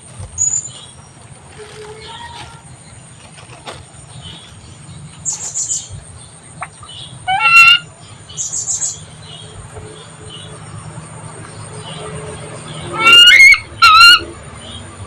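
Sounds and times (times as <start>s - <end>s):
high bird chirps: 0.4s - 3.0s, 4.0s - 14.9s
bird call rising in pitch: 12.7s - 14.3s.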